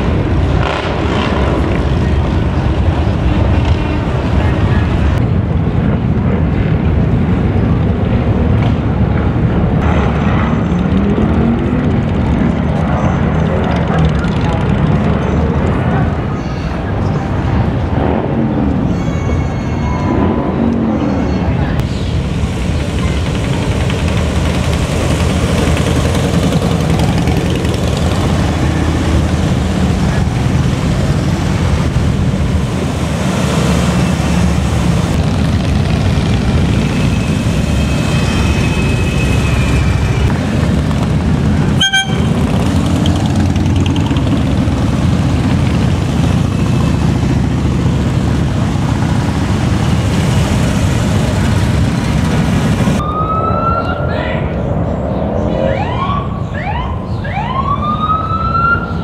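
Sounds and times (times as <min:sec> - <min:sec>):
motorcycles engine rumble: 0:00.0 - 0:59.0
horn toot: 0:41.7 - 0:42.5.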